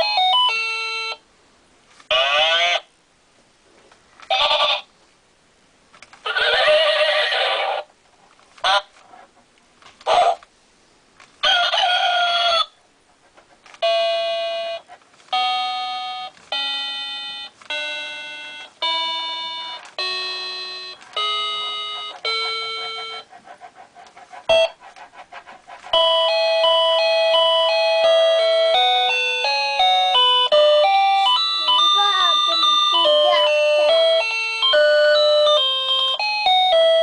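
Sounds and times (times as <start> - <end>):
recorded rooster crow: 11.4 - 12.8
electronic keyboard notes: 13.8 - 23.4, 25.9 - 37.0.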